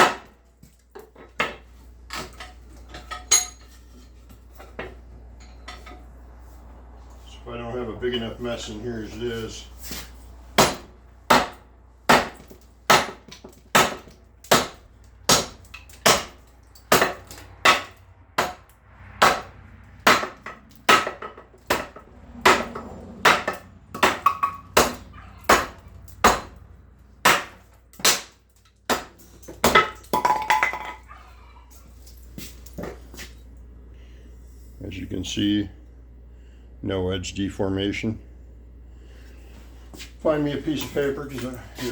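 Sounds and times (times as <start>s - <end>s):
cleaver chopping wood: 0.0s - 0.4s, 10.6s - 18.6s, 19.2s - 26.6s, 27.2s - 30.2s.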